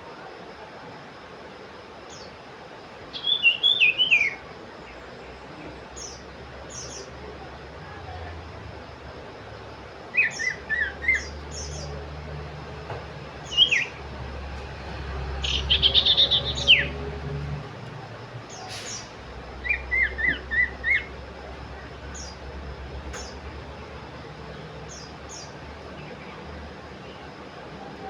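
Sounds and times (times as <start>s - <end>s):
bird singing whistled notes: 3.1s - 4.4s, 10.1s - 12.0s, 13.4s - 14.0s, 15.4s - 17.0s, 18.5s - 21.1s.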